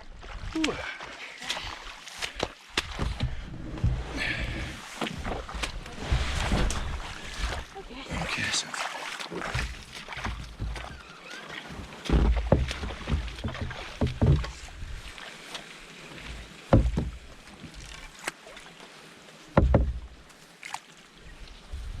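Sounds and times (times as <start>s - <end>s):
paddle strokes splashing: 0.0s - 22.0s.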